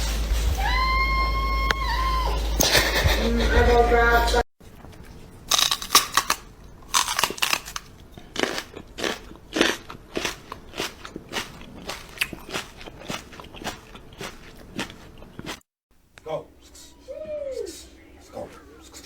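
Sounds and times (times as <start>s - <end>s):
crunchy food being chewed: 4.6s - 15.6s.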